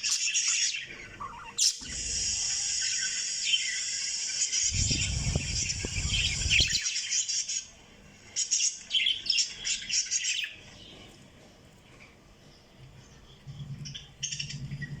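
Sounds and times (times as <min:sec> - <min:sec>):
low rumble: 0:04.7 - 0:06.8
lovebirds chirping: 0:04.7 - 0:06.9.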